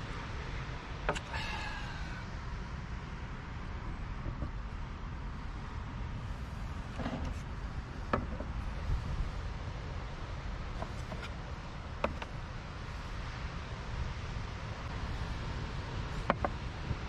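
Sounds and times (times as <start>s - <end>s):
strong wind buffeting: 0.0s - 11.1s.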